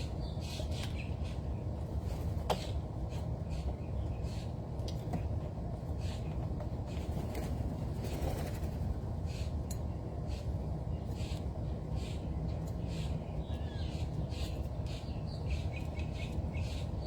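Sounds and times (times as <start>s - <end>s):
wild birds calling: 2.5s - 4.6s, 5.9s - 17.0s.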